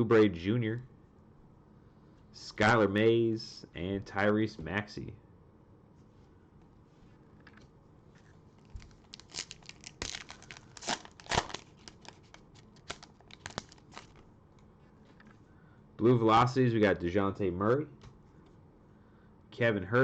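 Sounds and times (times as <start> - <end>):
cellophane wrapper tearing and crinkling: 8.6 - 14.2.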